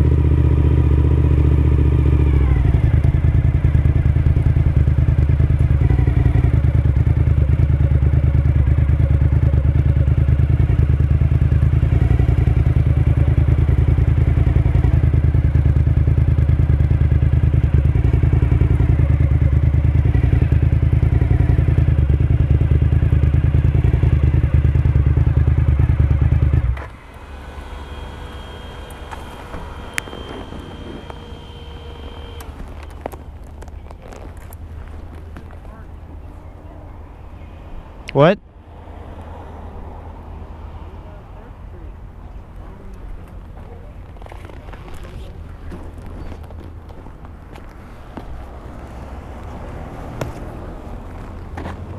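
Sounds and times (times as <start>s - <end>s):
motorcycle engine running: 0.0s - 37.0s, 41.0s - 51.9s
faint high whine: 26.8s - 33.3s.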